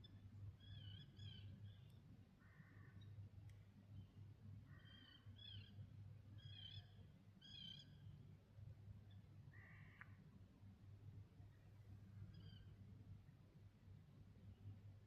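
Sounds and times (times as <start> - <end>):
faint bird calls: 0.1 - 3.1, 9.5 - 10.2, 12.3 - 12.7.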